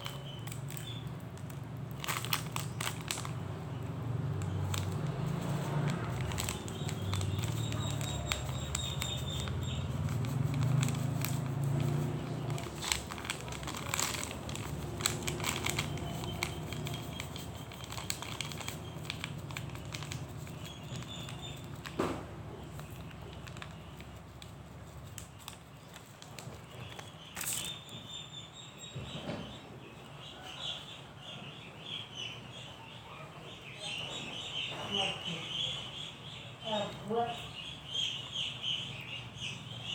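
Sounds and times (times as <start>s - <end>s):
crinkling: 0.0s - 28.0s.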